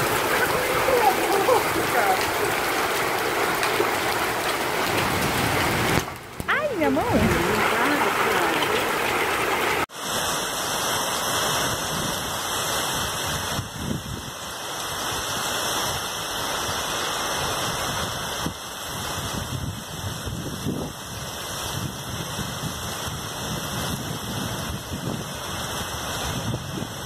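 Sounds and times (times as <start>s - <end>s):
hailstones striking ground: 0.0s - 9.9s
gusting wind: 0.0s - 27.0s
heavy rain pouring: 0.0s - 27.0s.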